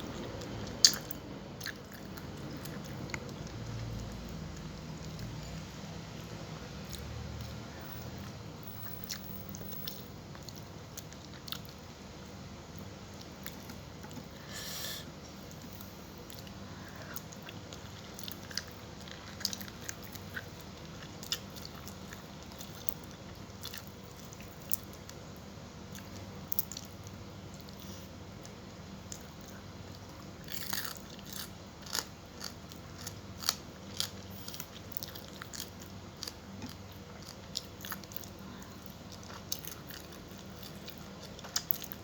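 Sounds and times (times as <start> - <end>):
person chewing and biting: 29.1 - 42.0.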